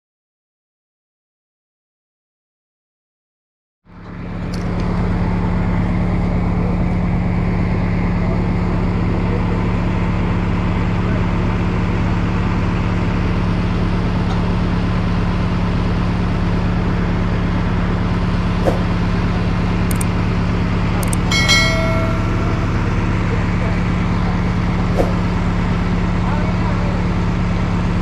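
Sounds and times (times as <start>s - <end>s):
diesel engine running: 3.9s - 28.0s
sharp click: 19.9s - 20.1s, 21.0s - 22.2s.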